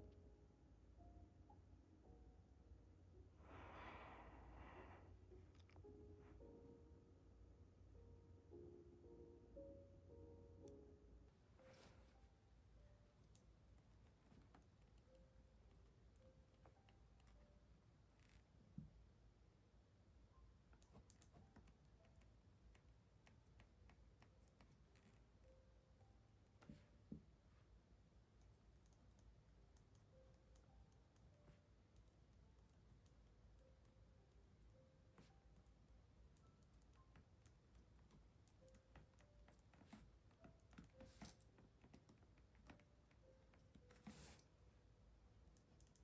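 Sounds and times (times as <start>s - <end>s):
typing on a keyboard: 20.8s - 25.5s, 28.4s - 44.6s, 45.4s - 46.0s.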